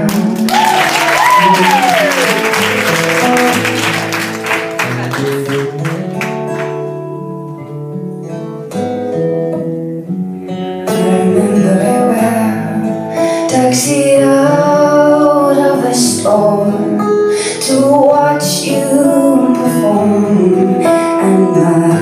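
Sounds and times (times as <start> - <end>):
acoustic guitar picking: 0.0 - 0.5, 1.4 - 22.0
people clapping: 0.0 - 7.0.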